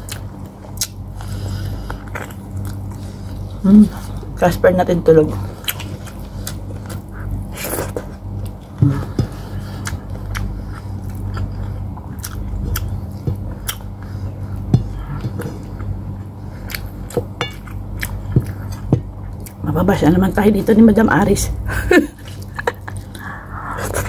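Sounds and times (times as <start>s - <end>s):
chewing and mouth sounds: 0.0s - 4.3s, 5.6s - 19.6s
steady low hum: 0.0s - 24.0s.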